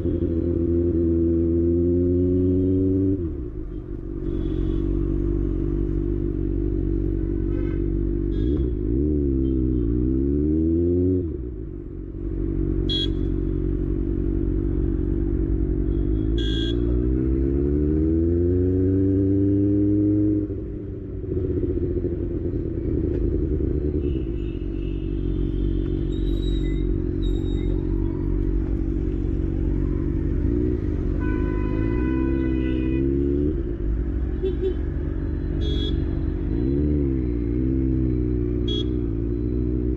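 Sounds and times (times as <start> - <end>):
vehicle horn honking: 12.9 - 13.4, 16.0 - 17.0, 31.1 - 33.3, 34.4 - 34.9, 35.6 - 36.2, 38.6 - 39.0
motorcycle engine revving: 16.4 - 39.9.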